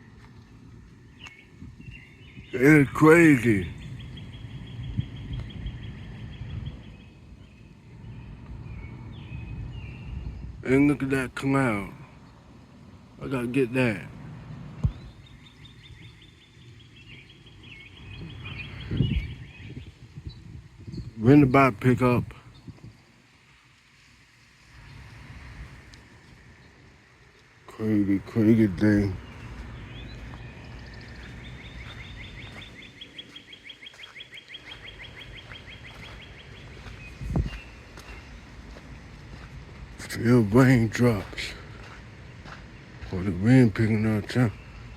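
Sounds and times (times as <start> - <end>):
wind rumble on microphone: 0.0 - 2.6, 3.4 - 10.7, 14.1 - 23.2, 24.7 - 26.9, 34.7 - 40.1
bird chirping: 0.0 - 23.2, 26.4 - 44.9
songbird trilling: 1.0 - 12.4, 14.8 - 23.0, 27.7 - 38.4.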